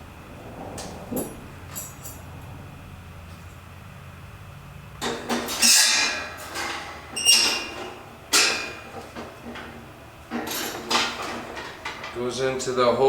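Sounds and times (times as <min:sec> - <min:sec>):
low steady hum: 0:00.0 - 0:05.1
sheet metal clanking and rattling: 0:05.0 - 0:12.4.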